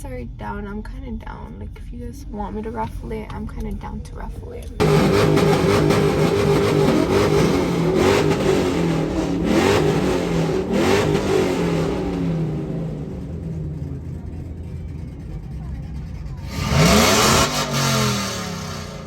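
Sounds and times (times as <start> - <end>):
vehicle engine revving: 4.8 - 19.0.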